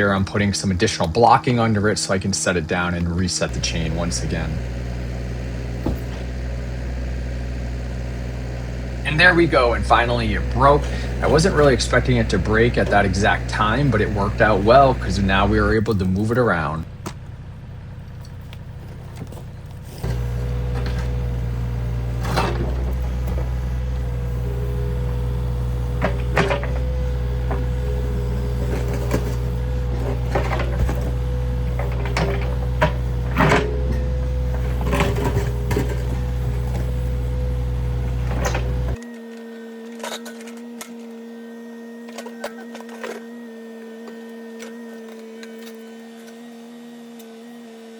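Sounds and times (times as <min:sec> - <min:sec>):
excavator diesel engine running: 0:00.0 - 0:39.0
hydraulic whine: 0:00.0 - 0:47.9
concrete knocks and clunks: 0:18.8 - 0:38.9.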